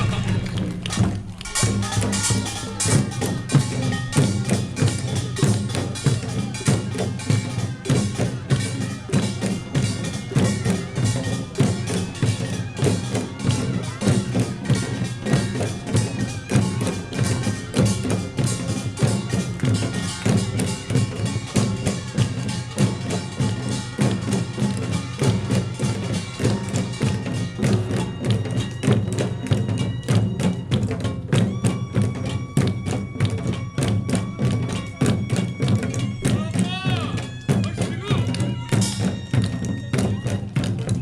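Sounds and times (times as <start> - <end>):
gongs: 0.0 - 30.6
barrel drums: 0.0 - 41.0
hourglass drums: 0.0 - 41.0.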